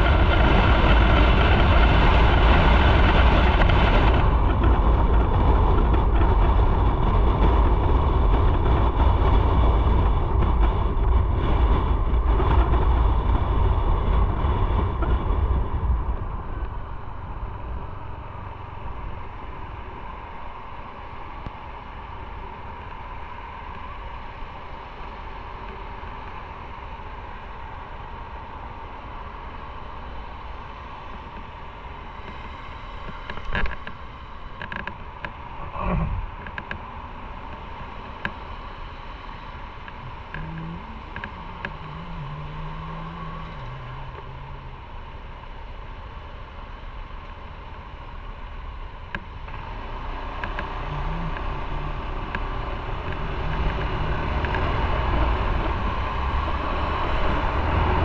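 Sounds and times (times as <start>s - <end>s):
wind noise: 0.0s - 58.0s
motorcycle engine: 39.5s - 58.0s.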